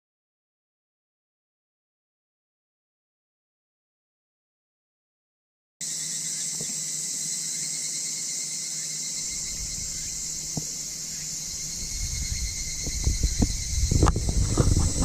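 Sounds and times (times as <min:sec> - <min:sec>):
insects chirping: 0:05.8 - 0:15.0
low rumble: 0:09.4 - 0:15.0.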